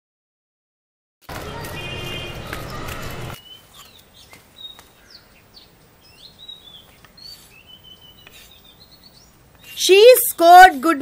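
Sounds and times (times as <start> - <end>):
bird chirps: 3.4 - 10.4.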